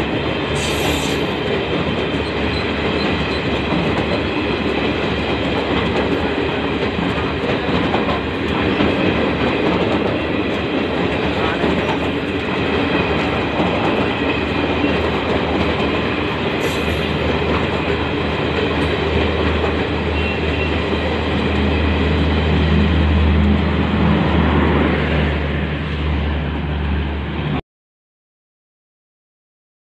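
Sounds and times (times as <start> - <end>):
passing train rushing: 0.0 - 27.6.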